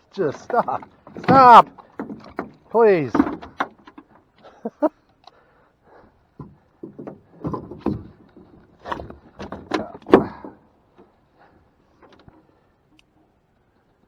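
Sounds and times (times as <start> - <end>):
scrapes: 0.0 - 4.7
knocks and thumps: 0.2 - 4.3, 6.4 - 11.1.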